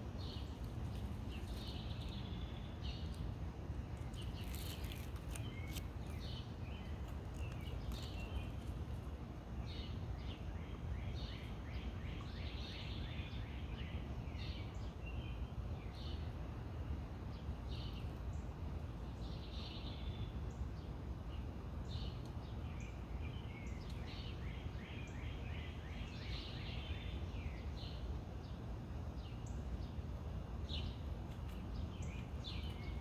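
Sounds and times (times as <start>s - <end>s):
birds chirping: 0.0s - 13.7s, 30.6s - 33.0s.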